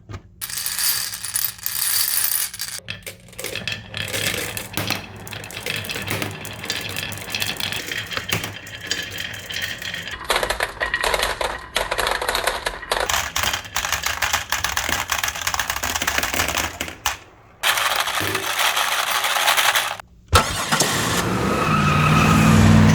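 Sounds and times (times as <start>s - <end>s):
marbles rattling through marble run: 0.4s - 20.0s.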